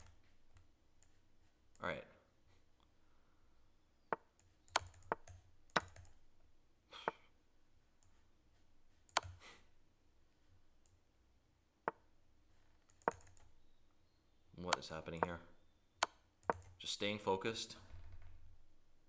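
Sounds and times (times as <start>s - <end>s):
sharp clicks of chess moves: 4.1s - 6.0s, 14.6s - 15.4s.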